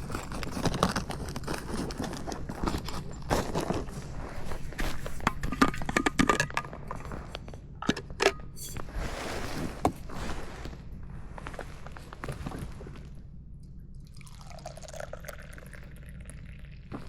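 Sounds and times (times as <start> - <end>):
clicks and knocks of handled objects: 0.0 - 8.9
rustling of small objects: 0.0 - 13.3.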